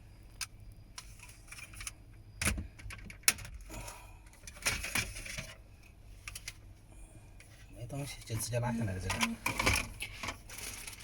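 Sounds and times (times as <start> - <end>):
scraping and rustling: 7.4 - 11.0.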